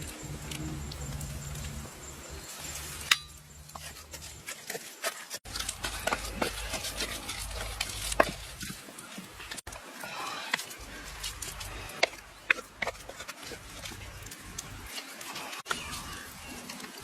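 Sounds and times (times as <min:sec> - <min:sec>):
cooking utensils knocking and scraping: 0:02.8 - 0:15.0.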